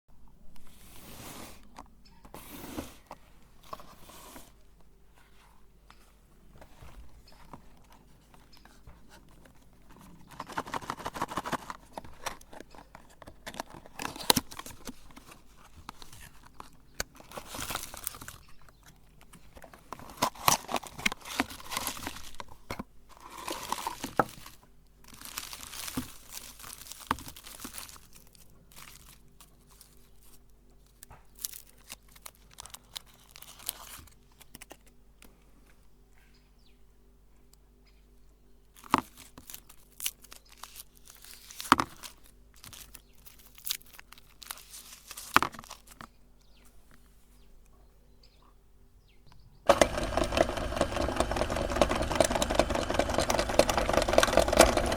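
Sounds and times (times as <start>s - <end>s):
meat grinder crunching candy: 25.1s - 29.2s, 49.7s - 54.9s.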